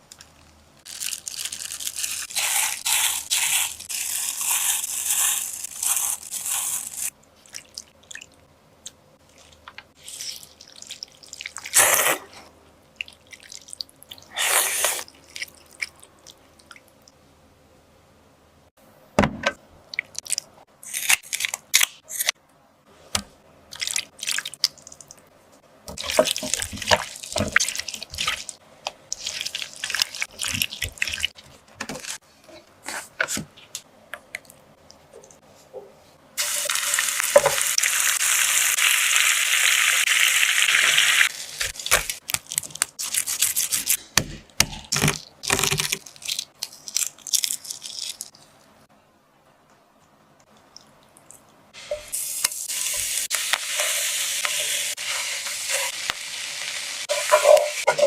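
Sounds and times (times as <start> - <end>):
utensils and containers clicking: 57.1 - 58.0.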